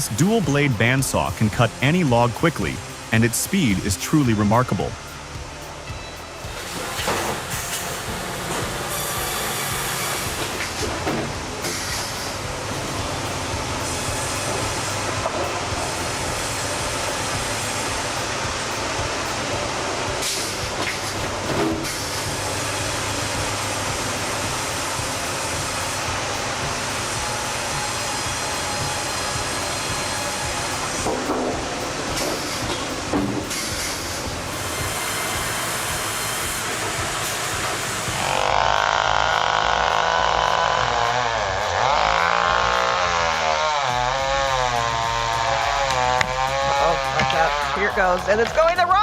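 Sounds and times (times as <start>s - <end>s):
sawmill machinery rumble and hiss: 0.0s - 48.8s
log carriage travelling on rails: 5.8s - 39.7s.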